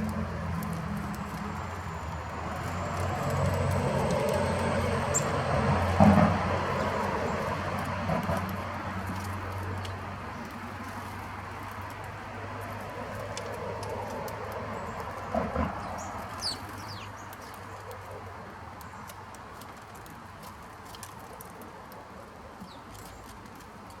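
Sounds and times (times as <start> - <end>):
birds chirping: 0.1 - 8.4, 14.2 - 19.4.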